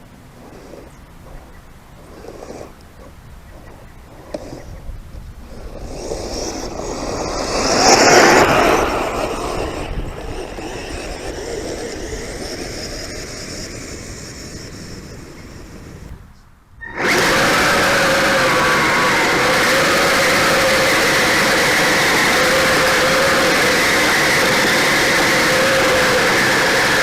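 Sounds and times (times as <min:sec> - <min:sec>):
whirring of electric motors and tracks: 0:03.5 - 0:16.2, 0:16.8 - 0:27.0
steady motor whine: 0:05.5 - 0:16.2, 0:16.8 - 0:27.0.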